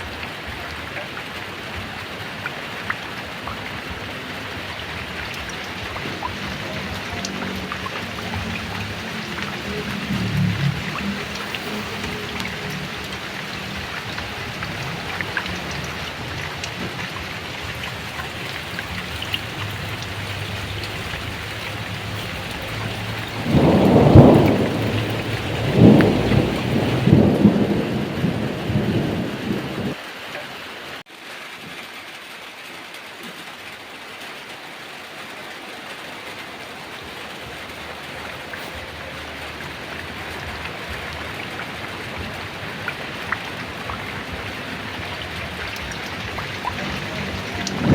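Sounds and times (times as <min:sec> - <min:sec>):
heavy rain falling: 0:00.0 - 0:47.9
roll of thunder: 0:07.8 - 0:30.0, 0:41.6 - 0:47.9.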